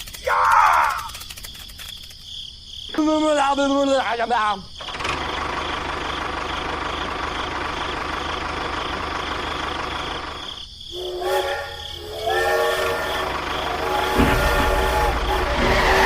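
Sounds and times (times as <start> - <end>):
horn-like held tones: 10.9 - 16.0
steady rumbling noise: 10.9 - 16.0.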